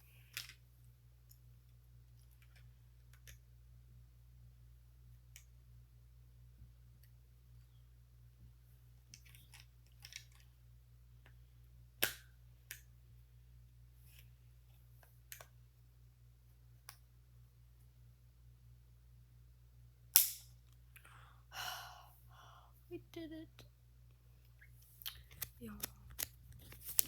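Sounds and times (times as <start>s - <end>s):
plastic pieces clicking and snapping: 9.0s - 10.5s, 25.0s - 27.0s.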